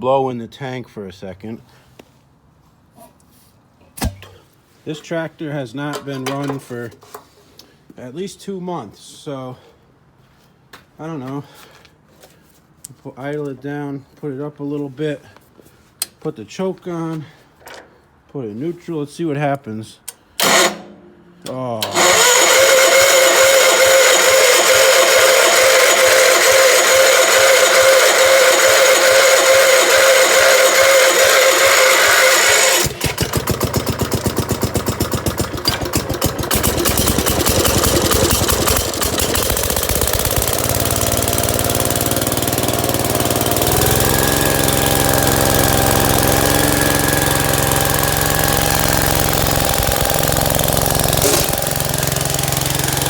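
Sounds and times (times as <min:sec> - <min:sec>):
starter motor whine: 0:20.4 - 0:20.9, 0:21.8 - 0:53.0
small engine running unevenly: 0:21.8 - 0:53.0.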